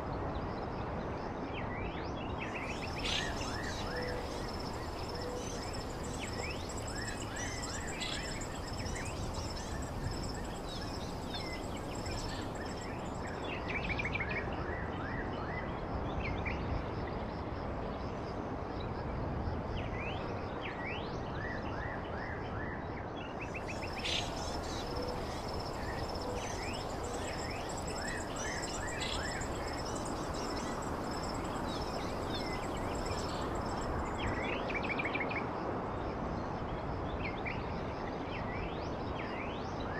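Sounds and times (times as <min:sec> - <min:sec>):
outdoor ambient hiss: 0:00.0 - 0:21.7, 0:23.2 - 0:39.9
birds chirping: 0:02.6 - 0:13.3, 0:23.6 - 0:34.3.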